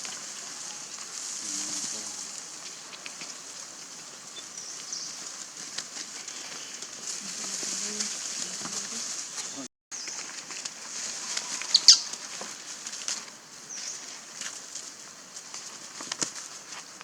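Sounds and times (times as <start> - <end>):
small clicks and crackles: 0.0 - 3.5, 14.2 - 17.0
steady high hiss: 0.0 - 16.0.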